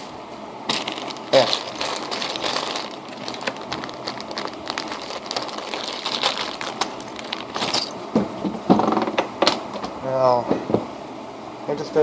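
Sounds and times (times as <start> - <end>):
crinkling: 0.7 - 8.7.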